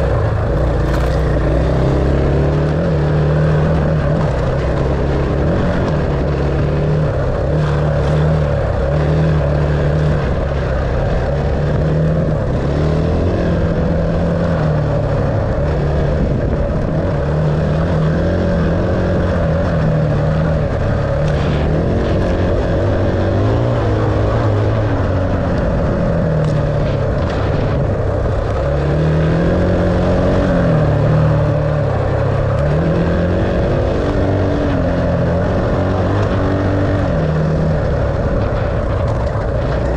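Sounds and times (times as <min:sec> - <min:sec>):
dirt bike engine revving: 0:00.0 - 0:16.4, 0:26.8 - 0:38.7.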